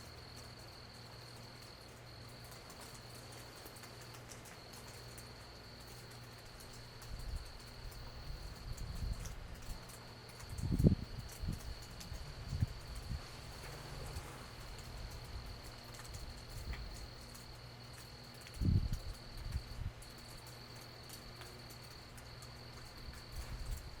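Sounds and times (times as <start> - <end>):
night insects trilling: 0.0 - 24.0
rain drips: 0.0 - 24.0.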